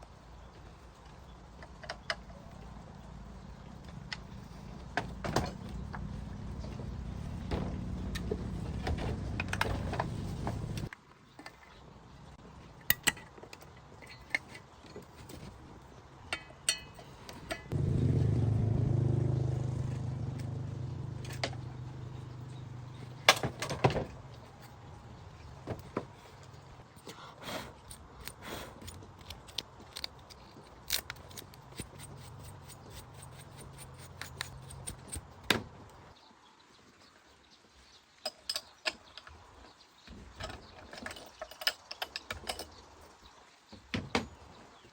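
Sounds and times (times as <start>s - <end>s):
low motor hum: 2.6s - 10.9s, 17.7s - 23.3s
metal parts clicking and knocking: 12.8s - 15.5s, 27.8s - 35.8s, 40.2s - 42.9s.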